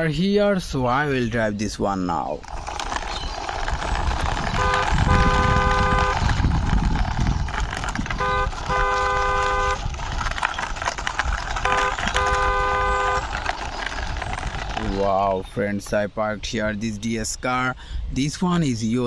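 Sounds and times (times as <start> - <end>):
toy truck wheels rolling: 1.6 - 16.1
truck horn honking: 4.6 - 6.2, 8.2 - 9.8, 11.6 - 13.3.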